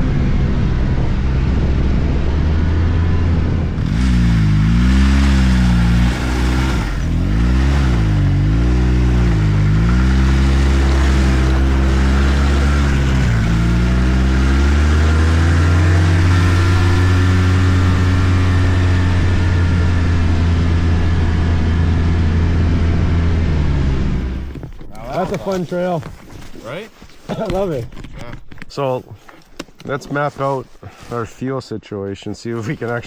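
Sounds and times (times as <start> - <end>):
snowmobile engine revving: 0.0 - 25.6.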